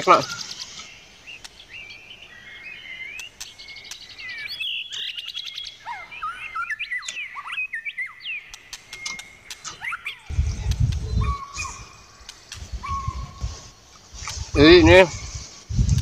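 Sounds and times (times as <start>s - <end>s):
small birds chirping: 0.0s - 16.0s
light clicks: 12.2s - 12.7s.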